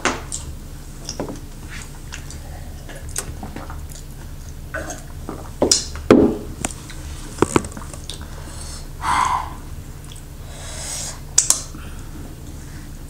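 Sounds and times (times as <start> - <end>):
person chewing food: 0.3 - 6.0, 6.7 - 10.3.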